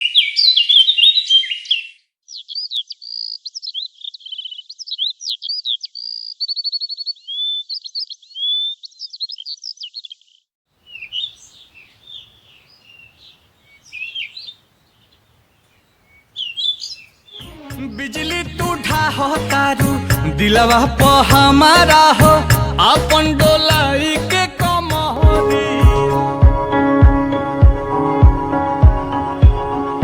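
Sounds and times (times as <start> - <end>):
songbird singing trills: 0.0 - 18.7
faint scratchy bird calls: 0.1 - 17.4.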